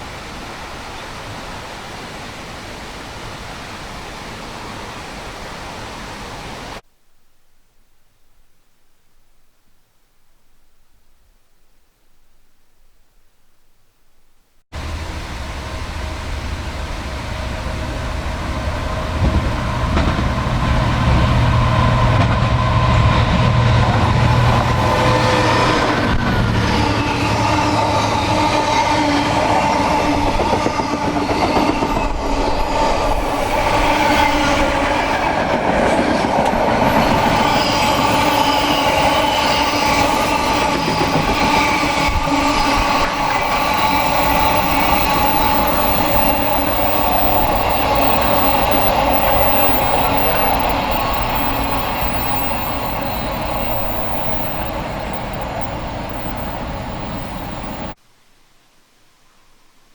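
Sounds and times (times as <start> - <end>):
diesel train passing: 14.8 - 58.0.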